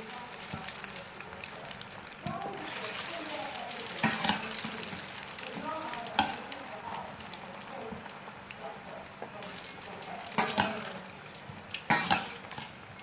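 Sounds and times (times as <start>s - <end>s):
fries sizzling in oil: 0.0s - 13.0s.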